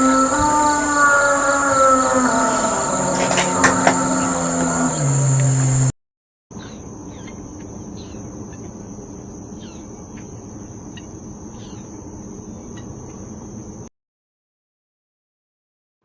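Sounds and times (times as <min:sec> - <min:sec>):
insect trill: 0:00.0 - 0:05.9, 0:06.5 - 0:13.9
loud sound cutting off: 0:00.0 - 0:05.9.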